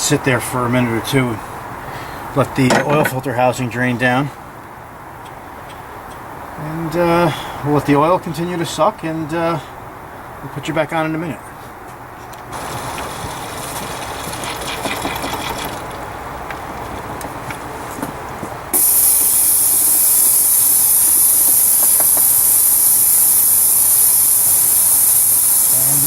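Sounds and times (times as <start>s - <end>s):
oil extractor hissing: 12.5s - 16.0s, 18.7s - 26.0s.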